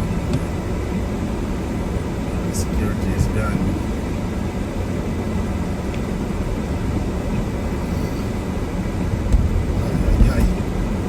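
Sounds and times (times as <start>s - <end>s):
car rumbling from inside: 0.0s - 11.0s
low bumps: 6.5s - 11.0s.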